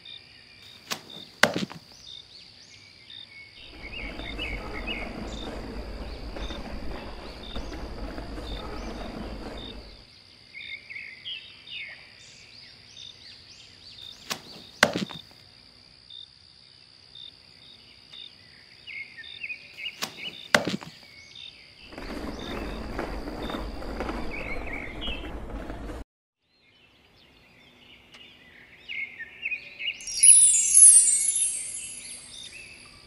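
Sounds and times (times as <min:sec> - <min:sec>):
birds chirping: 0:00.6 - 0:10.0, 0:18.4 - 0:25.8, 0:26.9 - 0:33.0
high insect trill: 0:30.0 - 0:33.0
short regular chirps: 0:30.1 - 0:32.9.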